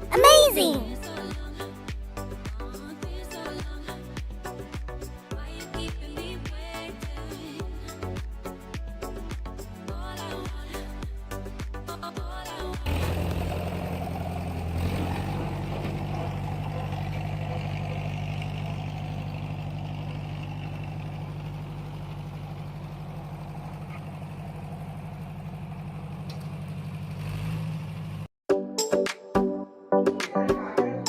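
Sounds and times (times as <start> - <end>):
small engine running: 12.9 - 28.3.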